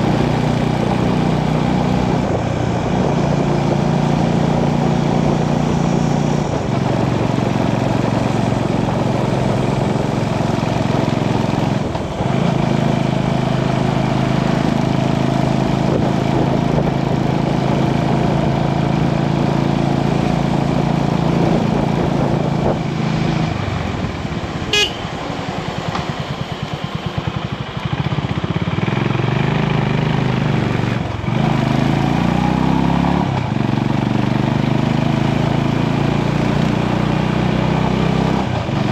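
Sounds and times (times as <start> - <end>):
motorcycle engine running: 0.0 - 38.9
short high beep: 24.7 - 25.1.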